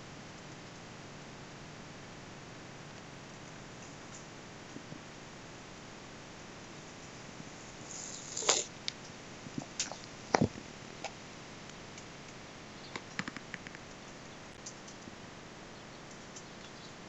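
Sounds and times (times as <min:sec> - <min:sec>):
faint hiss: 0:00.0 - 0:10.9
sharp clicks and taps: 0:12.9 - 0:13.9.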